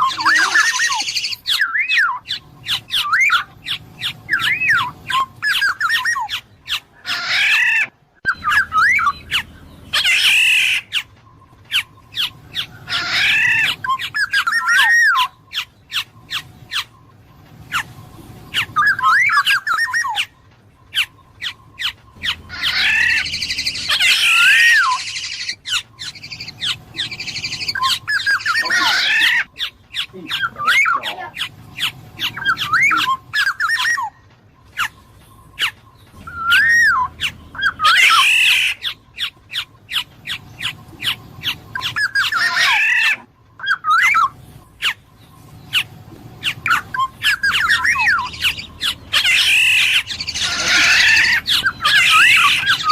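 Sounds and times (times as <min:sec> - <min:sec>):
bird fluty whistles: 0:31.8 - 0:39.7.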